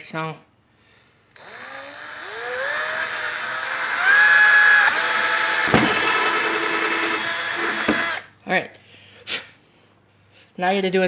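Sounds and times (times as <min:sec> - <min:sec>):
electric drill motor whine: 0:01.4 - 0:08.3
sharp knock: 0:05.6 - 0:06.2.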